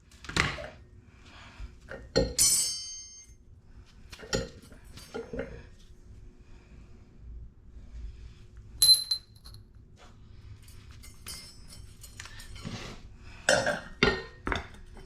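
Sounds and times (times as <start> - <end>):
metal clink: 8.8 - 9.6.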